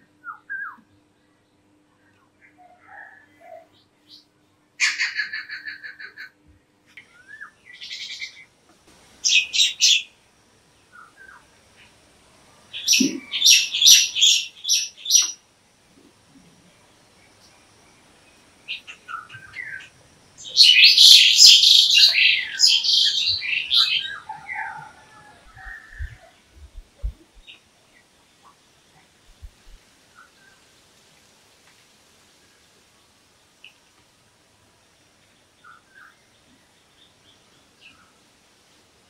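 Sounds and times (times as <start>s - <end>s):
birds chirping: 12.7s - 15.4s, 18.0s - 28.1s.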